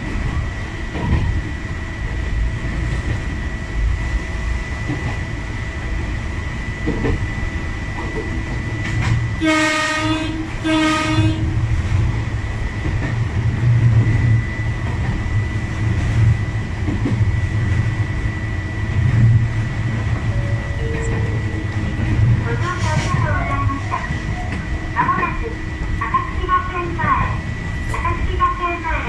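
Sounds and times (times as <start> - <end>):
train wheel rumble and whine: 0.0 - 29.0
train horn blasts: 9.4 - 11.6.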